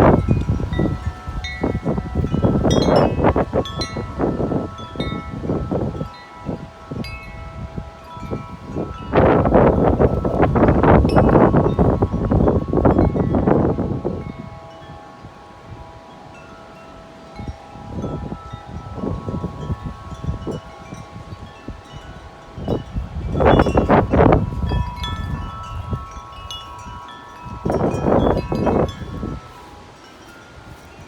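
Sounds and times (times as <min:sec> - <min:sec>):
wind buffeting microphone: 0:00.0 - 0:31.0
wind chimes ringing: 0:00.0 - 0:31.0.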